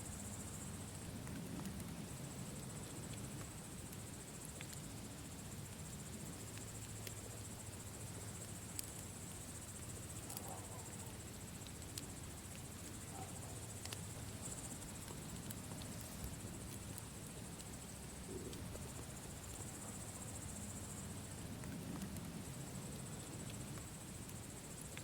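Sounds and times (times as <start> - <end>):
campfire crackling: 0.0 - 25.0
crickets chirping: 0.0 - 25.0
campfire pops: 1.1 - 2.4, 8.3 - 20.1, 21.3 - 22.5.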